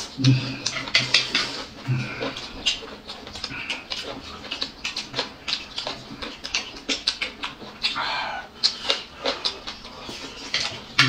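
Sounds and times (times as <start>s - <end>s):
chewing and mouth smacking: 0.0s - 11.0s.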